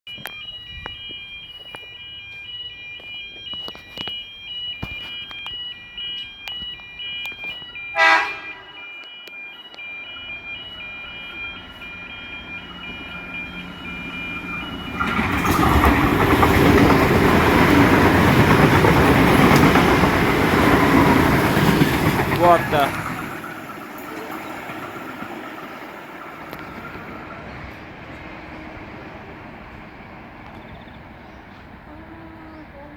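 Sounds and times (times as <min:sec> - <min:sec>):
two-note electronic warning tone: 0:00.1 - 0:27.4
train horn blast: 0:07.9 - 0:08.8
train passing rumble: 0:09.6 - 0:32.9.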